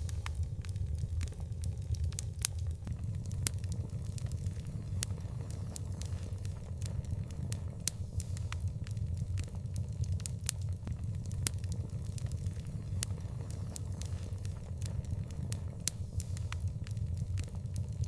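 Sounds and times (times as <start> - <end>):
low rumble: 0.0 - 18.0
wood fire crackling and popping: 0.0 - 18.0.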